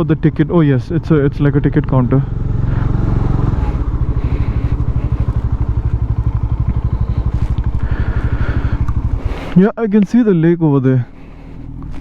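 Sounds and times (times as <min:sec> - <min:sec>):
motorcycle engine idling: 0:00.0 - 0:10.2, 0:10.9 - 0:12.0.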